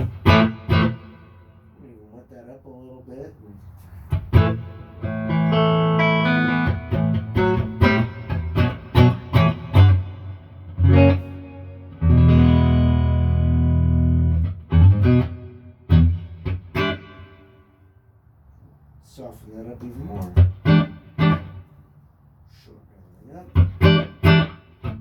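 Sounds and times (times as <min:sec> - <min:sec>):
electric guitar with reverb: 0:00.0 - 0:01.9, 0:04.1 - 0:18.0, 0:19.9 - 0:21.8, 0:23.5 - 0:25.0.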